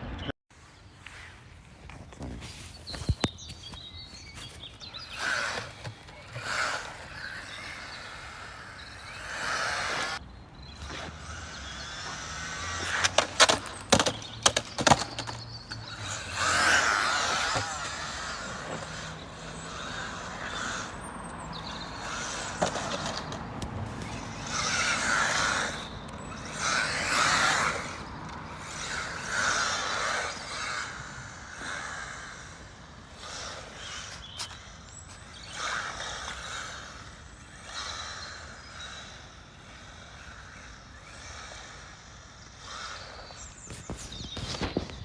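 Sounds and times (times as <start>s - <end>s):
electric motors whining: 4.1s - 45.0s
tyre noise: 10.8s - 21.0s, 21.6s - 30.9s.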